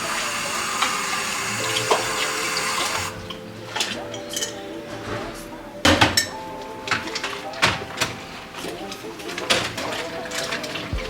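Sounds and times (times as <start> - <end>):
tap water running into sink: 0.0 - 3.2.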